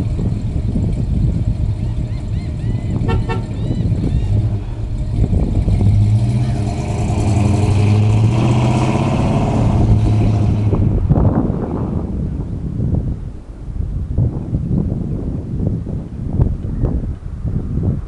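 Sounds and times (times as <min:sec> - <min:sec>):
car engine accelerating: 0:00.0 - 0:11.3.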